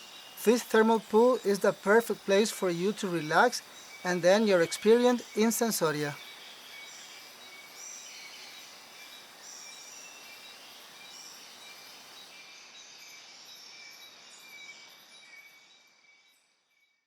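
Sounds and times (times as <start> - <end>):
steady hiss: 0.0 - 13.6
birds chirping and calling: 0.4 - 6.2.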